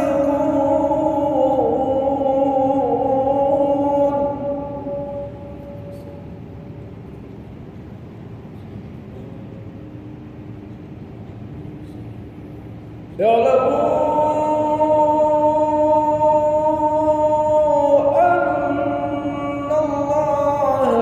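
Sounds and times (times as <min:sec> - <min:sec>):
man reciting in long melodic notes: 0:00.0 - 0:06.8, 0:13.1 - 0:21.0.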